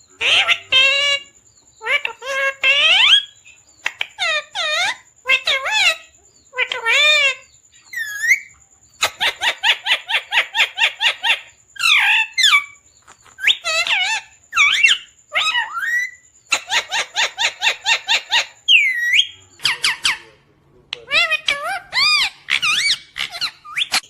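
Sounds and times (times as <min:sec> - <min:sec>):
parrot chirping: 0:00.0 - 0:24.0
parrot whistled squawks: 0:13.4 - 0:20.3.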